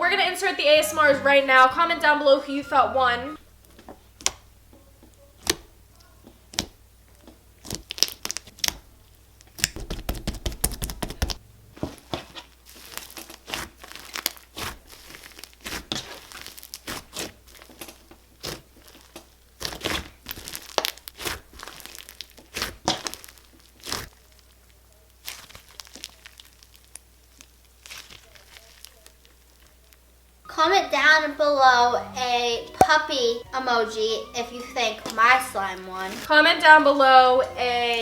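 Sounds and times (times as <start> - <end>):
slime squished by hand: 5.4 - 11.4, 12.0 - 30.0.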